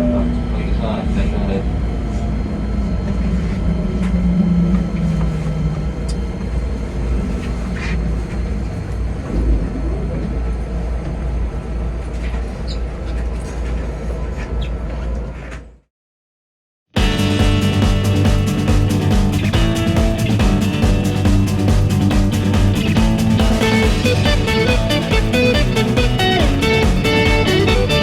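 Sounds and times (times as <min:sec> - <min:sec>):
train hum: 0:00.0 - 0:15.4, 0:17.0 - 0:28.0
train rumble: 0:00.0 - 0:15.6, 0:17.0 - 0:28.0.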